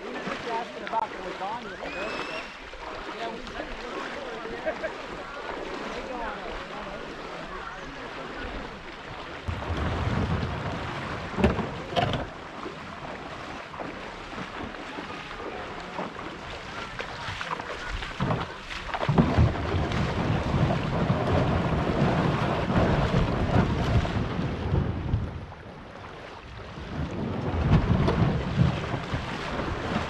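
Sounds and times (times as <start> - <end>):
low rumble: 9.5 - 11.9
wind buffeting microphone: 16.6 - 30.0.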